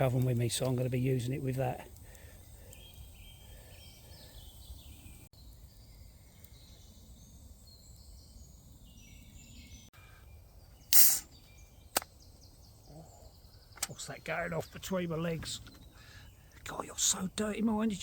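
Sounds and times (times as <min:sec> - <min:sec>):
songbirds singing: 0:00.0 - 0:18.0
can opening hiss: 0:10.9 - 0:12.1.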